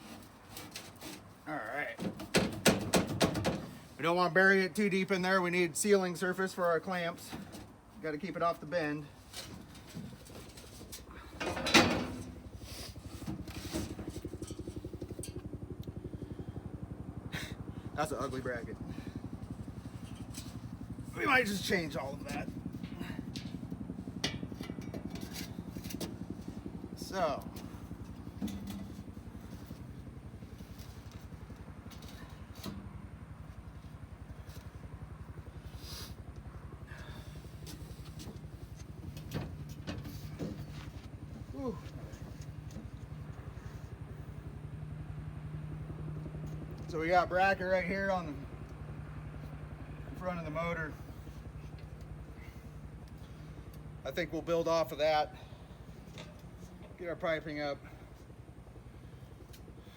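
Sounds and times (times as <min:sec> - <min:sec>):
engine idling: 0:09.0 - 0:59.9
small engine chugging: 0:57.8 - 0:59.9.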